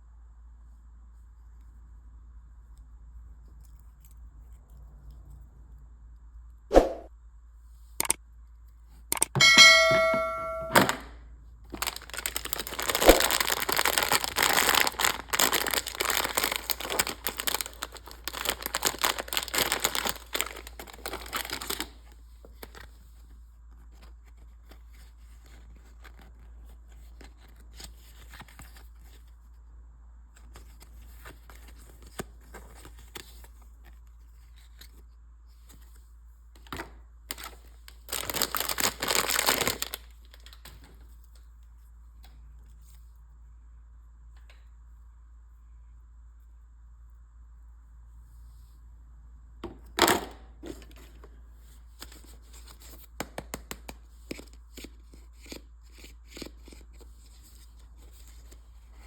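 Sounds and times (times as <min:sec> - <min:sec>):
packaging crinkling and tearing: 0:11.6 - 0:29.3, 0:37.3 - 0:40.8.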